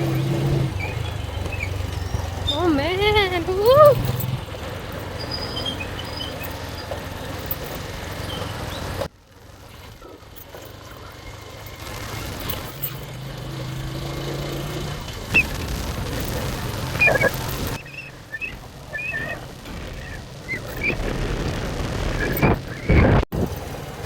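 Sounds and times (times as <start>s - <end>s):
motorcycle engine running: 0.0s - 24.0s
wind rushing over microphone: 15.3s - 23.6s.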